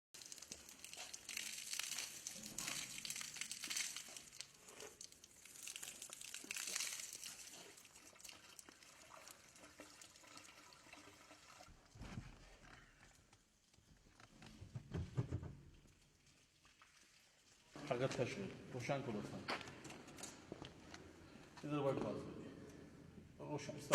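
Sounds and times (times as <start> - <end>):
water splashing and trickling: 0.1 - 13.0, 15.8 - 18.1.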